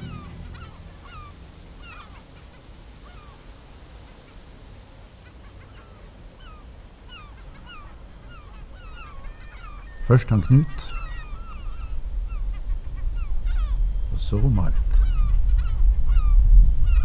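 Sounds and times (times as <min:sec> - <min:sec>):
low steady rumble: 0:00.0 - 0:02.9
birds calling: 0:00.0 - 0:17.0.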